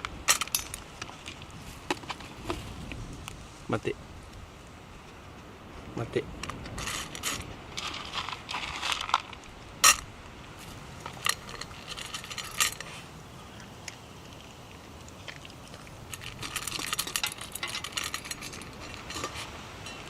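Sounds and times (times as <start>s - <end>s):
small hard objects clinking: 6.5s - 10.1s, 11.0s - 12.9s, 16.1s - 20.0s.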